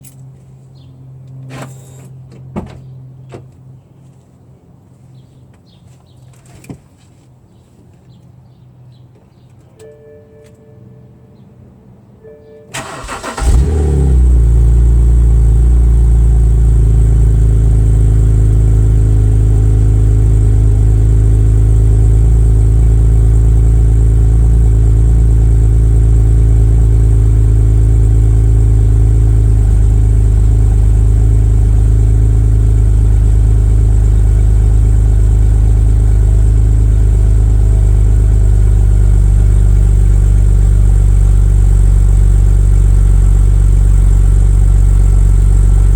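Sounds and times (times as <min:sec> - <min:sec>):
starter motor cranking: 0:12.8 - 0:14.0
car engine idling loudly: 0:12.8 - 0:45.9.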